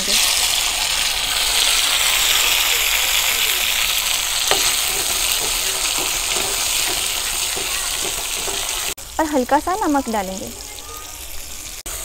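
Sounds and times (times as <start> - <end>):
tomatoes sizzling in hot oil: 0.0 - 12.0
spatula knocking and scraping pan: 3.3 - 9.0.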